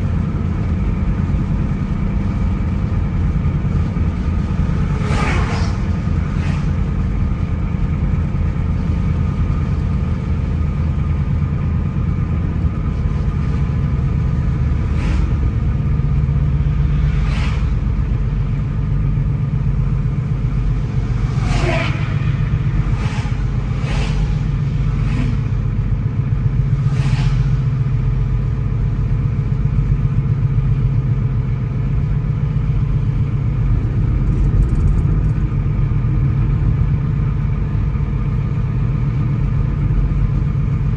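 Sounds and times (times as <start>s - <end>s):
car engine and tyre noise: 0.0s - 40.9s
sharp swishes or knocks: 21.0s - 25.6s.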